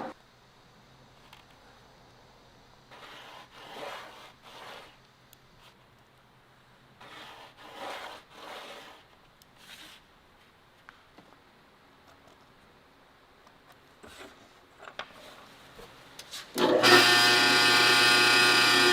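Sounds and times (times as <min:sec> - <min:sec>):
scraping strokes on wood: 0:02.9 - 0:05.0, 0:07.0 - 0:10.0.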